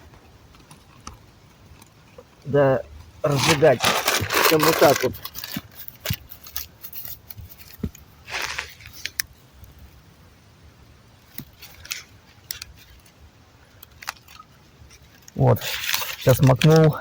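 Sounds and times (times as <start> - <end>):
brief rustle: 3.3 - 9.3
light clicks of handled items: 3.4 - 9.8, 11.3 - 17.0.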